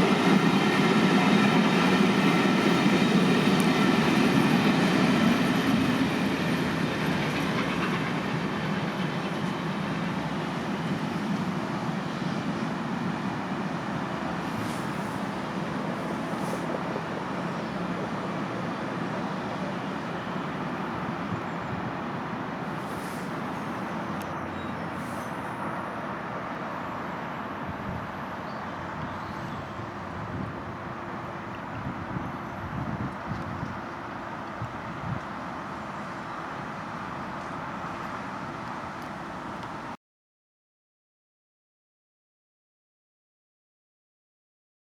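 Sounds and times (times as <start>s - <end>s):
rail clickety-clack: 0.0s - 21.4s, 28.9s - 39.8s
train rumbling past: 0.0s - 40.0s.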